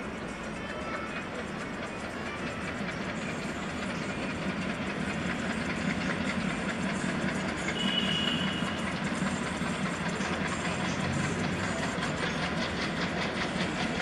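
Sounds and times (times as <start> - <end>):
train rumbling and rattling: 0.0 - 14.0.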